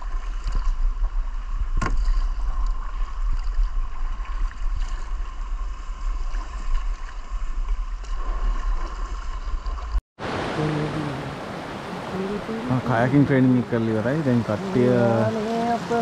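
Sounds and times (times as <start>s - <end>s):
river water rushing: 10.2s - 16.0s.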